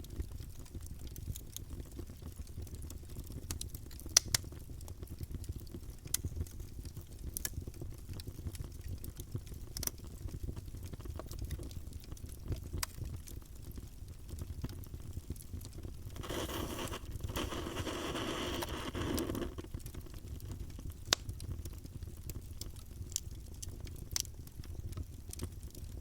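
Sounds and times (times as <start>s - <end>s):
low fire rumble: 0.0s - 26.0s
wood crackling in campfire: 0.0s - 26.0s
sharp pops from fire: 2.4s - 10.2s, 14.6s - 26.0s.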